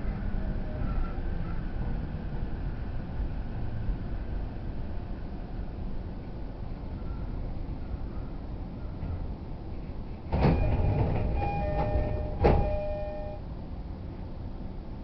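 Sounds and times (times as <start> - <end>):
low train rumble: 0.0 - 15.0
train door knock: 10.3 - 13.3
two-note door chime: 10.6 - 13.4.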